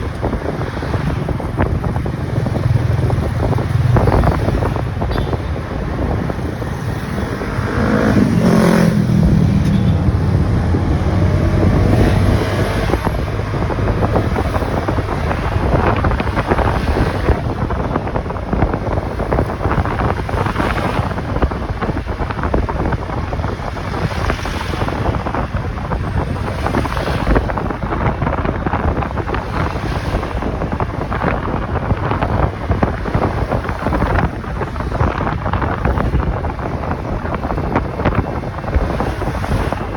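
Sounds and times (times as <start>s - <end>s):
motorcycle engine: 0.0s - 14.8s
wind rushing over microphone: 0.0s - 39.9s.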